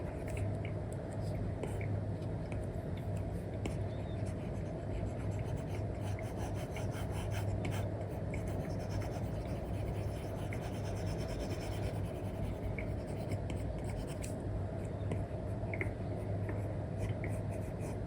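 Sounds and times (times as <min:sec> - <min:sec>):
steady low hum: 0:00.0 - 0:18.0
stylus scratching on screen: 0:08.4 - 0:14.3.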